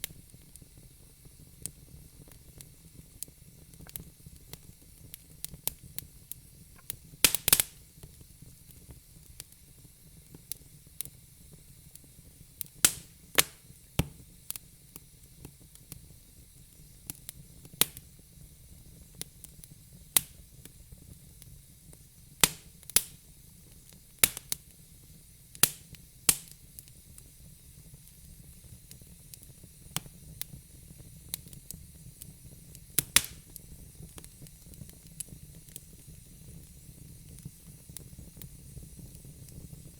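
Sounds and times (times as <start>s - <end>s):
faint steady hiss: 0.0s - 39.9s
wood fire crackling: 0.0s - 39.9s.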